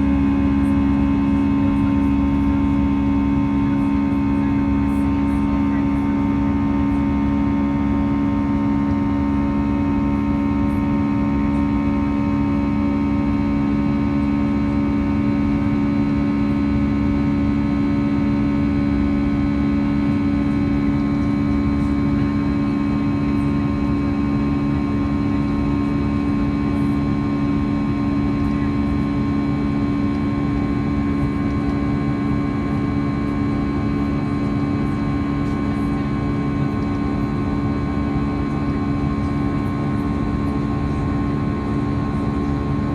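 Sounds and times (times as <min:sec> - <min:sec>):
airplane cabin drone: 0:00.0 - 0:42.9.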